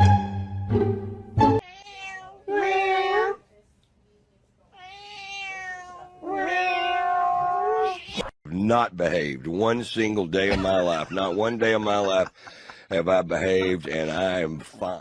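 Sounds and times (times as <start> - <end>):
cat meowing: 1.6 - 3.4, 4.8 - 8.3.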